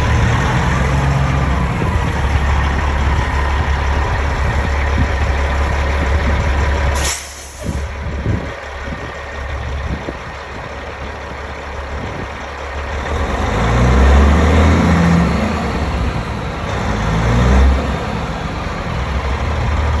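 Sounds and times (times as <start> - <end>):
engine revving: 0.0 - 20.0
truck diesel engine running: 0.0 - 20.0
air brake hiss: 7.0 - 7.9.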